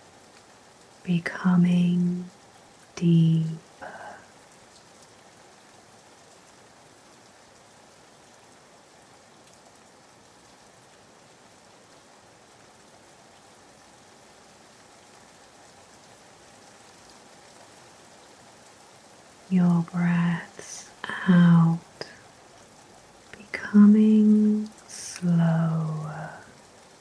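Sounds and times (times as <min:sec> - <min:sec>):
rain hissing: 0:00.0 - 0:27.0
raindrops ticking: 0:00.3 - 0:05.2, 0:19.4 - 0:27.0.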